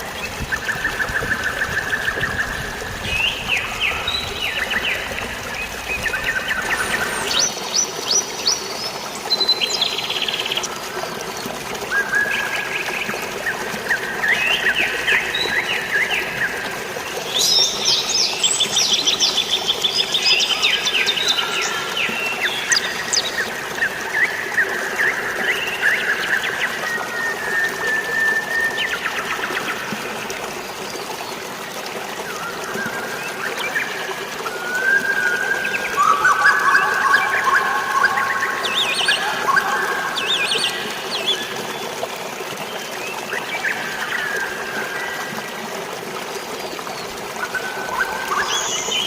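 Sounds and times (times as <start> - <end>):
running water and rain hiss: 0.0 - 49.0
birds chirping and trilling: 0.2 - 10.8, 34.8 - 41.9.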